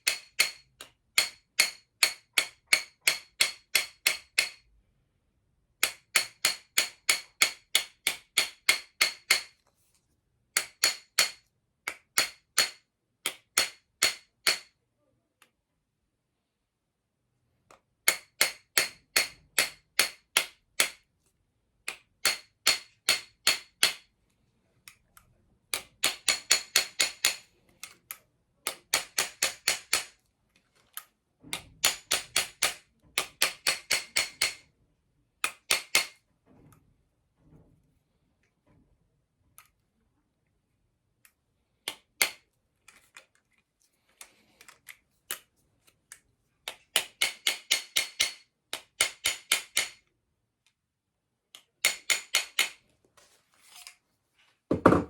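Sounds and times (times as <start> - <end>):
hammer tapping on metal: 0.0 - 4.6, 5.8 - 9.5, 10.6 - 14.7, 18.0 - 21.0, 21.9 - 24.1, 25.7 - 27.4, 28.6 - 30.2, 31.6 - 34.6, 47.0 - 50.0.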